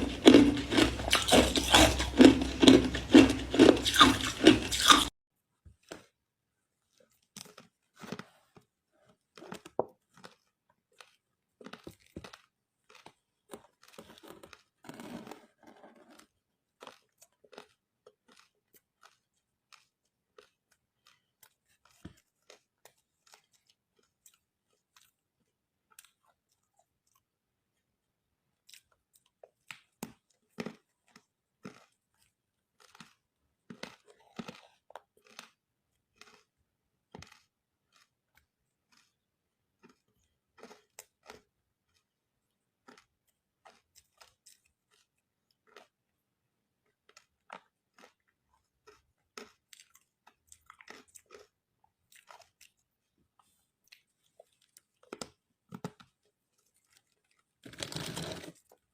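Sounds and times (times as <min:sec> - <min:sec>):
person crunching ice: 0:00.0 - 0:05.1, 0:57.6 - 0:58.7.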